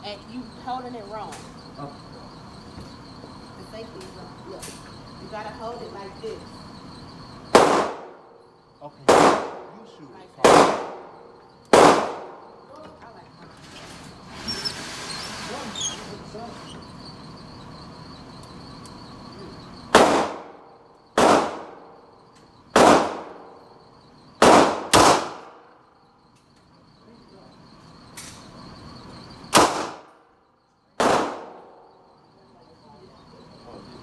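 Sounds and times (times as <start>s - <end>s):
handgun shots echoing indoors: 7.5s - 8.2s, 9.1s - 9.7s, 10.4s - 12.4s, 19.9s - 20.6s, 21.2s - 22.0s, 22.7s - 23.6s, 24.4s - 25.7s, 29.5s - 30.2s, 31.0s - 31.8s.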